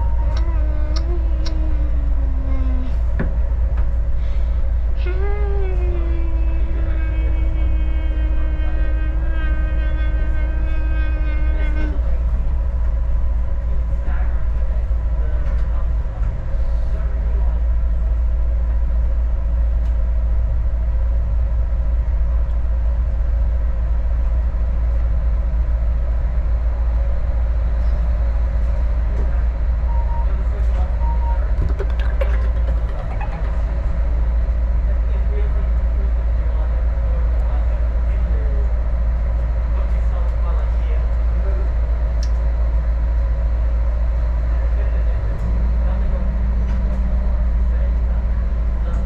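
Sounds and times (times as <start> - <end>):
diesel railcar rumbling: 0.0 - 49.0
train horn: 5.0 - 12.7.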